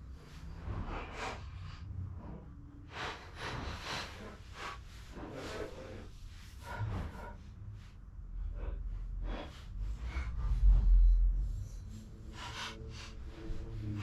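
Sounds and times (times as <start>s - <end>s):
man breathing hard: 12.2s - 14.0s.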